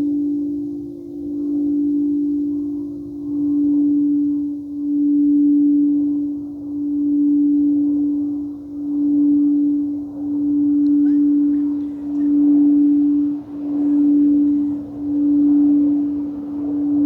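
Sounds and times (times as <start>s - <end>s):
singing bowl low tone: 0.0s - 17.0s.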